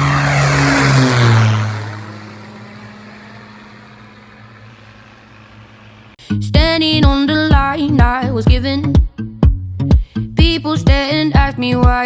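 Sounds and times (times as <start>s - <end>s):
propeller plane passing by: 0.0s - 6.2s.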